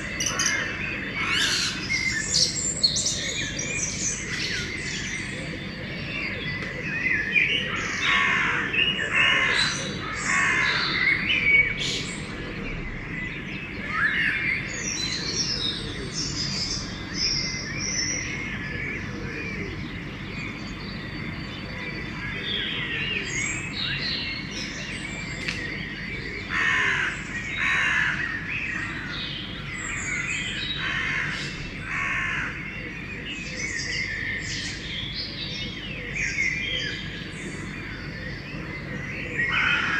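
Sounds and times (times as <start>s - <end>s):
songbirds chirping and singing: 0.0s - 39.9s
crows cawing: 7.8s - 11.2s, 26.5s - 29.2s, 30.8s - 32.7s, 39.5s - 39.9s.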